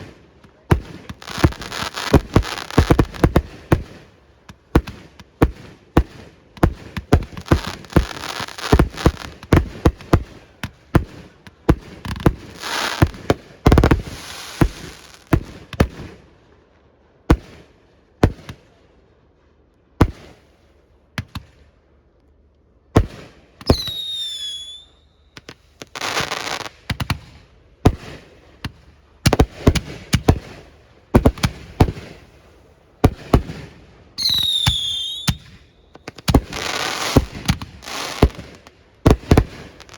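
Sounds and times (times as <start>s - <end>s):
fireworks bangs: 0.0s - 16.2s, 23.0s - 39.9s
fireworks crackling: 0.0s - 16.2s, 23.0s - 39.9s
falling firework whistle: 23.6s - 25.5s, 34.2s - 38.5s.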